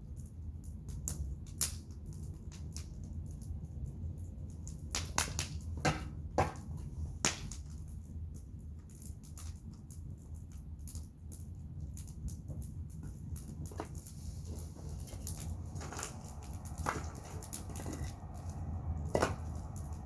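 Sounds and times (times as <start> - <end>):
bonfire crackling and popping: 0.0 - 20.0
low rumble: 13.8 - 20.0.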